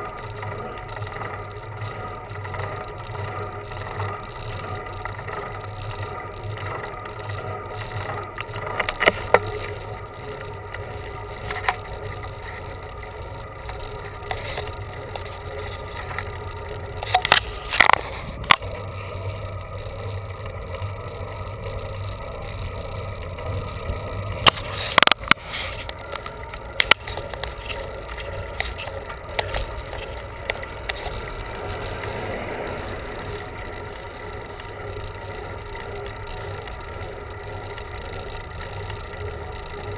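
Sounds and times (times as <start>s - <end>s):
bicycle clicks and rattles: 0.0s - 39.9s
bicycle rolling on road: 0.0s - 39.9s.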